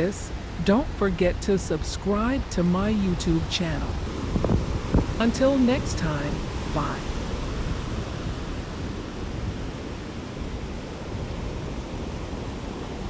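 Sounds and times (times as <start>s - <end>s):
wind rumbling on microphone: 0.0s - 13.0s
surf washing onto beach: 3.3s - 13.0s.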